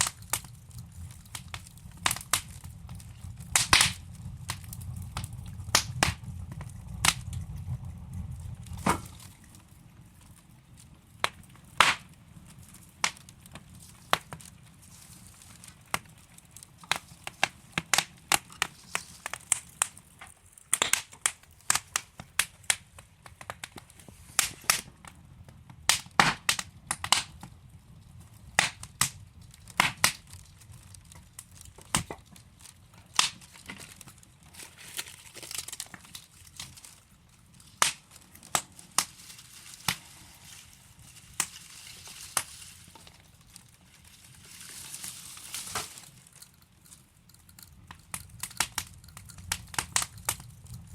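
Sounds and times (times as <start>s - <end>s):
logs crackling and popping: 0.0s - 50.9s
hiss of flame: 23.8s - 25.0s, 37.5s - 46.4s.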